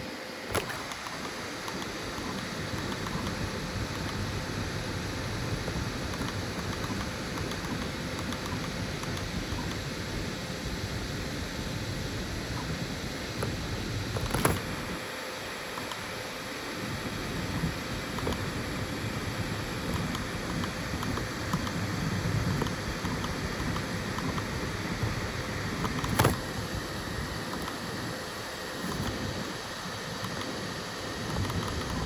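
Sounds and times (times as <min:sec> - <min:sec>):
three d printer running: 0:00.0 - 0:10.8, 0:12.4 - 0:32.0
sharp clicks: 0:00.5 - 0:03.4, 0:06.1 - 0:09.8.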